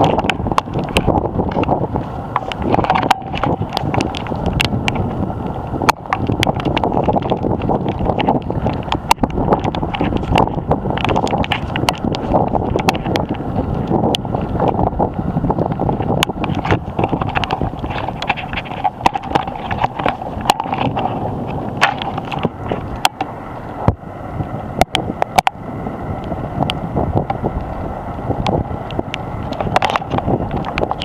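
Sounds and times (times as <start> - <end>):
storm wind buffeting microphone: 0.0 - 31.0
sharp knocks and cracks: 21.8 - 23.3.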